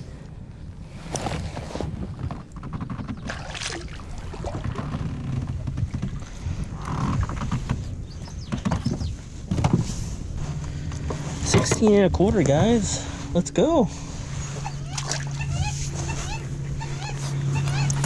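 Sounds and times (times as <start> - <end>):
wind rumble on microphone: 0.0 - 18.0
water splashing: 3.2 - 5.1.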